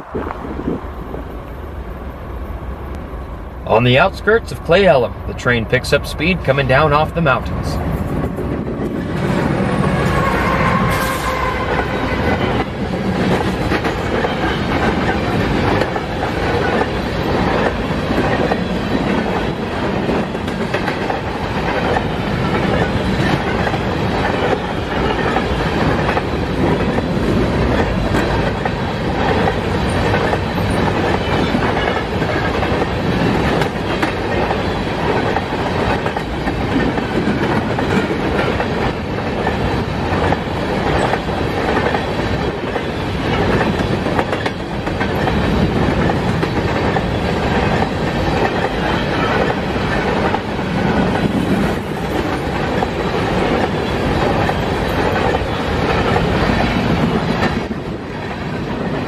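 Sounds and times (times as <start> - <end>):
locomotive engine passing: 0.0 - 59.0
train wheels clattering on rails: 6.8 - 59.0.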